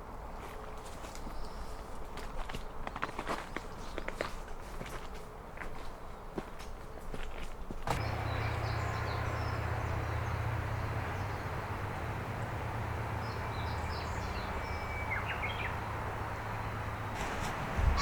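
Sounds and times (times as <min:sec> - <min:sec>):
river water rushing: 0:08.0 - 0:18.0
small birds chirping: 0:08.0 - 0:18.0.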